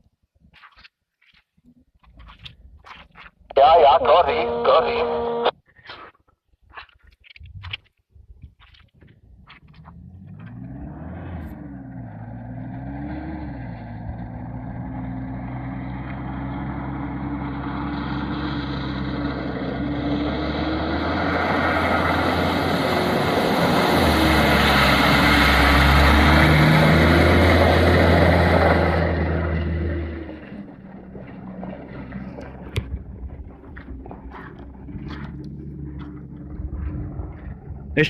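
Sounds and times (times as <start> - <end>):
engine revving under heavy load: 9.5 - 38.0.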